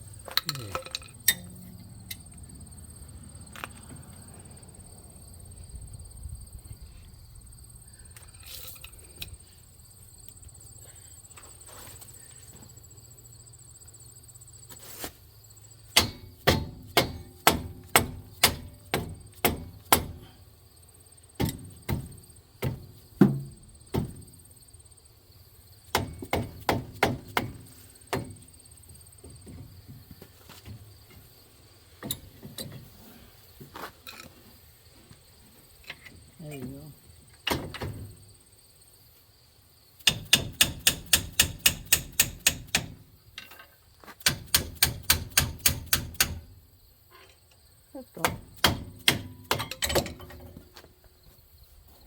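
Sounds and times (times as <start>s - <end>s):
hammer striking metal: 16.0s - 20.1s.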